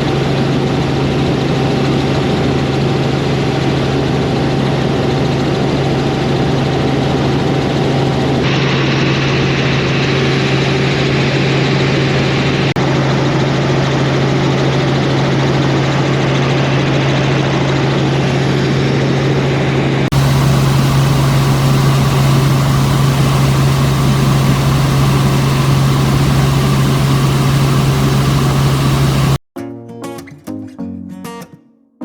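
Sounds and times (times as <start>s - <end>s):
helicopter engine and rotors droning: 8.8s - 29.4s.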